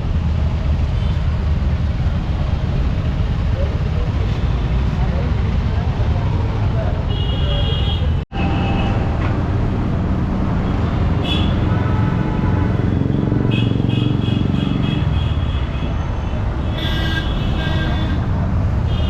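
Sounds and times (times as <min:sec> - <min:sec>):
vehicle engines rumbling: 0:00.0 - 0:19.0
vehicle horns honking: 0:07.1 - 0:09.2, 0:11.2 - 0:19.0.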